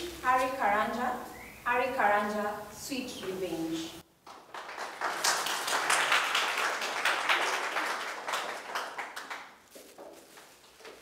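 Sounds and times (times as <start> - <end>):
audience applauding: 4.2 - 9.7.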